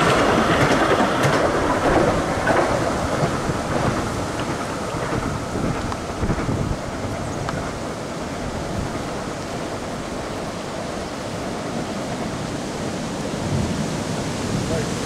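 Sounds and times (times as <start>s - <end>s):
train wheels on rail: 0.0s - 15.0s.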